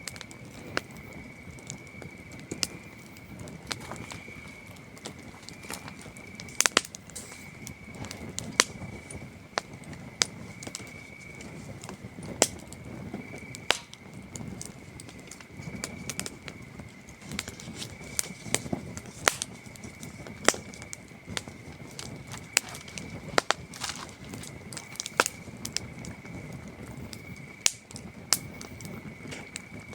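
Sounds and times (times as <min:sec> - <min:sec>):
campfire crackling and popping: 0:00.0 - 0:29.9
crickets trilling: 0:00.0 - 0:29.9.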